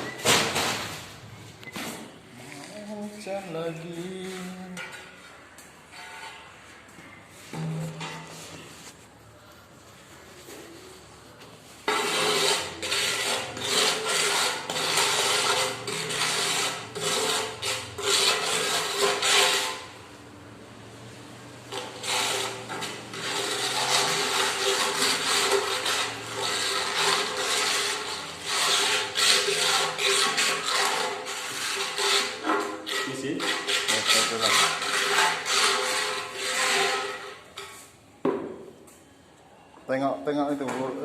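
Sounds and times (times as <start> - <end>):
rough scraping: 2.4 - 9.1, 10.2 - 20.0, 21.7 - 37.9.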